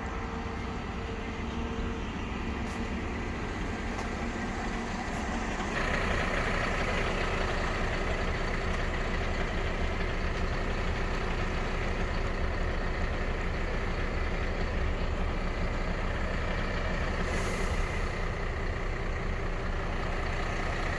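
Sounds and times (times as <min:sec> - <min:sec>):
refuse truck engine running: 0:00.0 - 0:20.9.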